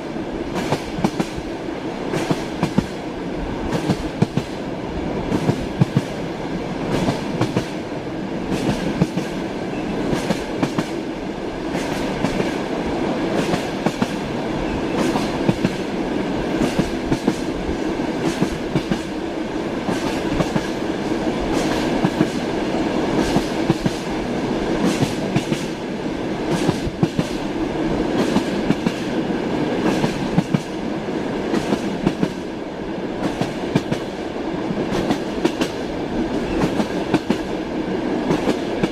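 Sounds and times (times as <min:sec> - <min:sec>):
train rumbling: 0:00.0 - 0:38.9
train wheels clacking over rail joints: 0:02.1 - 0:03.0, 0:03.7 - 0:04.6, 0:08.5 - 0:09.4, 0:10.1 - 0:11.0, 0:11.7 - 0:12.6, 0:14.9 - 0:15.8, 0:16.6 - 0:17.5, 0:18.2 - 0:19.1, 0:19.8 - 0:20.8, 0:21.5 - 0:22.4, 0:24.8 - 0:25.8, 0:26.5 - 0:27.5, 0:29.8 - 0:30.8, 0:34.9 - 0:37.5.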